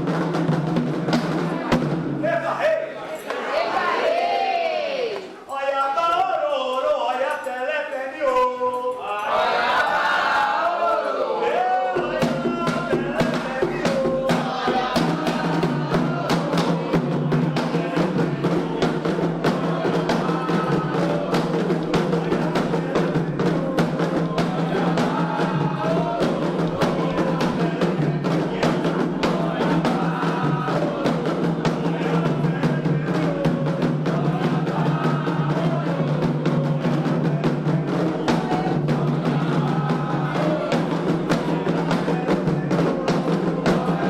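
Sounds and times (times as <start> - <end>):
fast hand drumming: 0.0 - 2.2, 11.9 - 44.0
people singing: 0.0 - 44.0.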